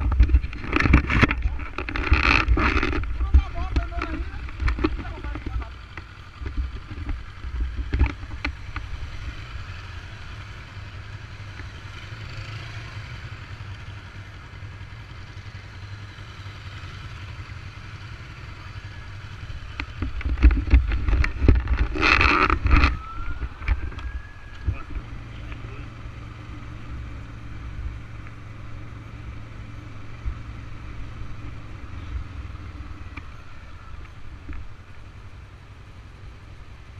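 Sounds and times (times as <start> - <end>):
traffic engines rumbling: 0.0 - 36.9.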